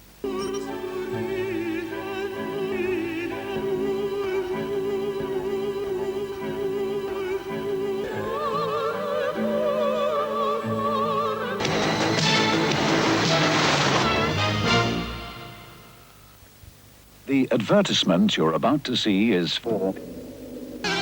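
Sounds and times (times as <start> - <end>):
operatic singing with orchestra: 0.2 - 14.5.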